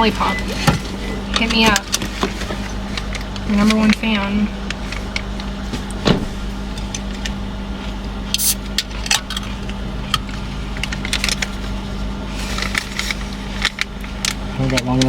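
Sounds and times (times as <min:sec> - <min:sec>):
low hum: 0:00.0 - 0:15.0
packaging clicks and rustles: 0:08.8 - 0:15.0.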